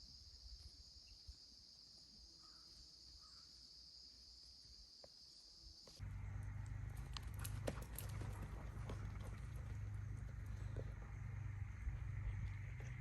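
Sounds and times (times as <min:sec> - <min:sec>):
crickets trilling: 0:00.0 - 0:13.0
low rumble: 0:06.0 - 0:13.0.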